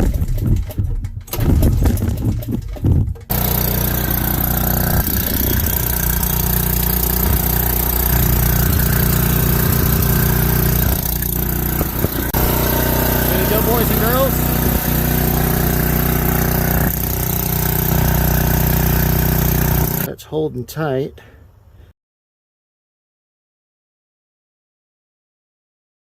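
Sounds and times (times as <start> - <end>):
generator engine starting: 0.0 - 20.1.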